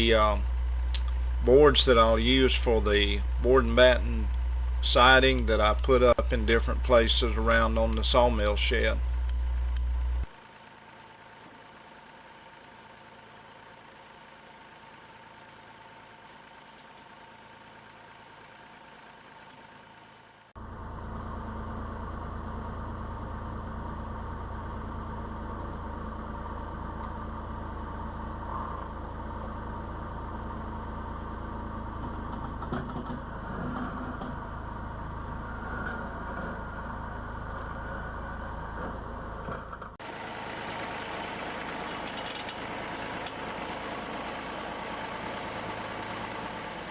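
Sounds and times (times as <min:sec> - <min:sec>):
vehicle engine running: 0:00.0 - 0:46.9.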